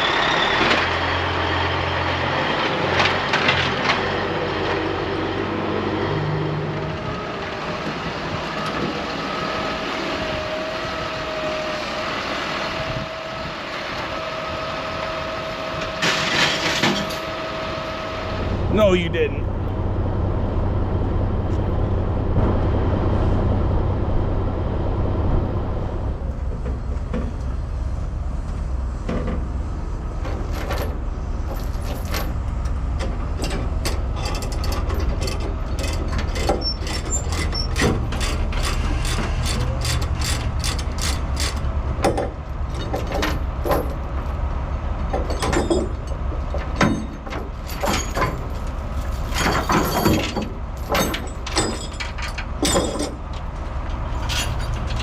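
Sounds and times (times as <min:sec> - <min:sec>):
chain clanking: 0:33.4 - 0:41.6, 0:46.8 - 0:53.2, 0:54.1 - 0:55.0.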